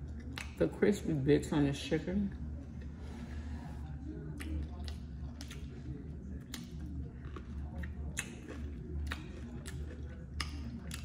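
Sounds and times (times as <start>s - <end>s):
chewing chicken wing: 0.0s - 0.8s, 2.3s - 11.0s
low steady hum: 0.0s - 11.0s.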